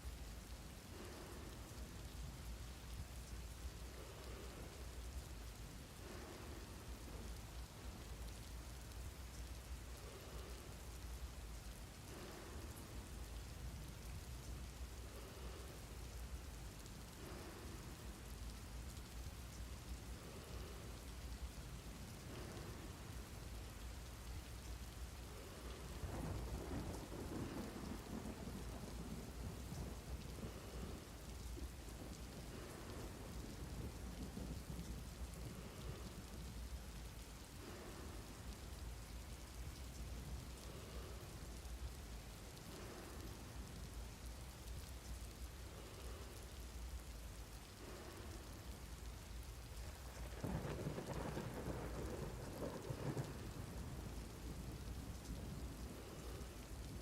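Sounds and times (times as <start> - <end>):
steady rain falling: 0.0 - 57.0
thunder rolling: 25.3 - 36.3, 50.2 - 56.5.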